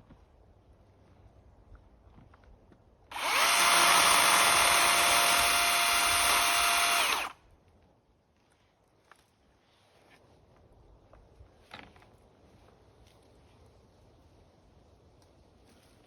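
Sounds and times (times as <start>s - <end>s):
power tool motor spinning: 3.1s - 7.4s.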